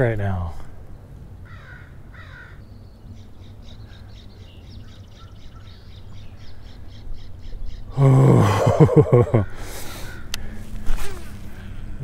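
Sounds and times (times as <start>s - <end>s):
small bird singing: 0.0s - 8.0s
low background rumble: 0.0s - 12.0s.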